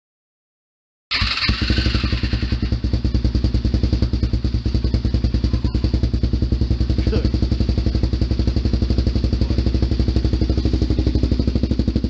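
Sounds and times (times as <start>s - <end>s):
engine idling: 1.1s - 12.0s.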